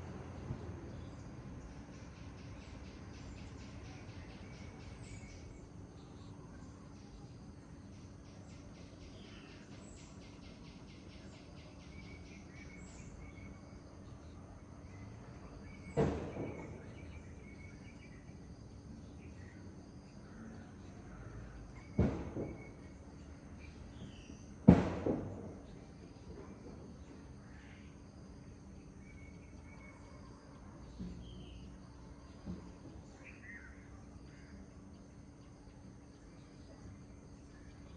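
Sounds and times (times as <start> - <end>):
birds chirping and singing: 2.0 - 14.3, 15.0 - 18.4
sharp knocks: 24.6 - 25.6.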